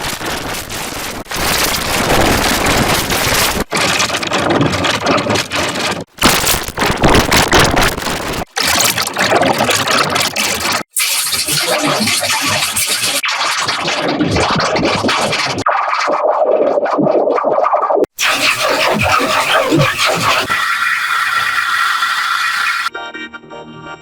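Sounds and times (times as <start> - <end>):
harsh distorted noise: 6.1 - 16.1, 18.2 - 22.9.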